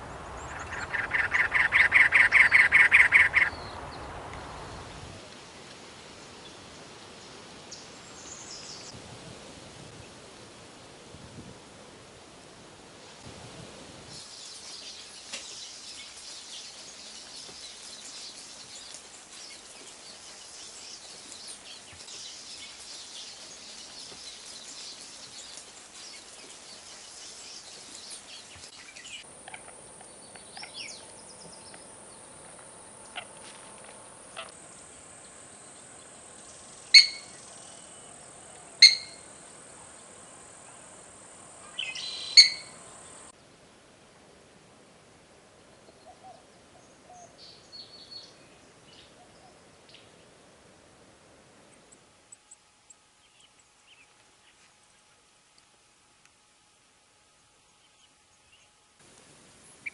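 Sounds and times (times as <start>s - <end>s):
loud sharp bird calls: 0.0s - 4.1s, 36.9s - 37.4s, 38.8s - 39.3s, 41.6s - 42.8s
dense high hiss with chirps: 0.0s - 59.9s
steady high whine: 28.6s - 43.3s.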